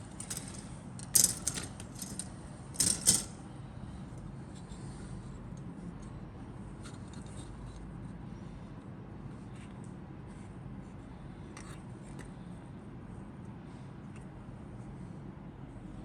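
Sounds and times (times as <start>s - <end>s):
steady low hum: 0.0s - 16.0s
soft clicks of plastic parts: 14.1s - 14.3s.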